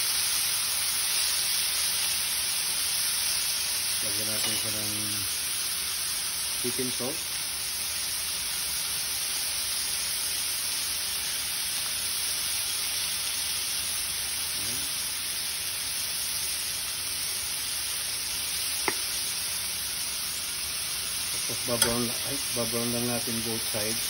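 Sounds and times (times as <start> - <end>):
meat sizzling in a frying pan: 0.0 - 24.0.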